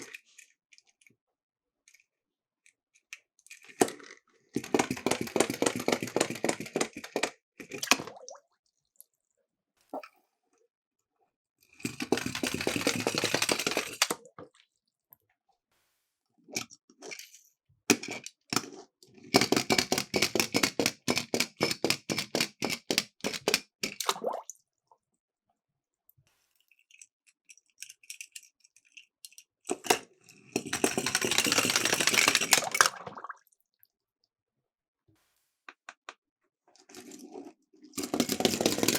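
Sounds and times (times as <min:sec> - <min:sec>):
toy cars rolling rattle: 0:02.6 - 0:07.4, 0:11.8 - 0:14.2, 0:26.7 - 0:33.0, 0:36.9 - 0:38.9.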